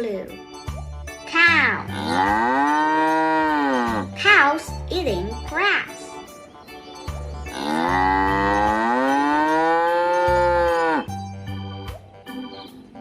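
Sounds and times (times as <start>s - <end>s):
background music with steady beat: 0.0s - 13.0s
cow mooing: 1.9s - 4.2s, 7.5s - 11.1s.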